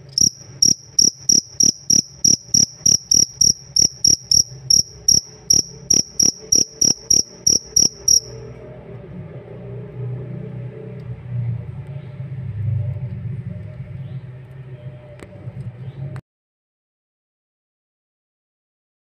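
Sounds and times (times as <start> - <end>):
cricket chirping: 0.0 - 8.4.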